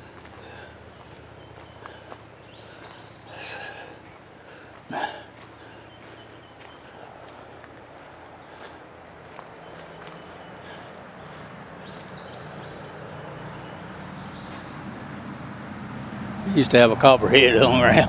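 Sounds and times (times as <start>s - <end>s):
passing road traffic hum: 0.0s - 18.0s
footsteps on dirt trail: 0.1s - 3.2s, 5.4s - 12.9s.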